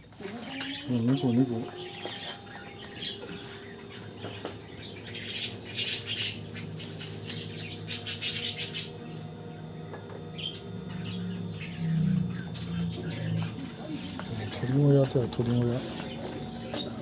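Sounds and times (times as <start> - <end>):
birds fluttering and rustling: 0.0 - 17.0
faint low hum: 0.0 - 17.0.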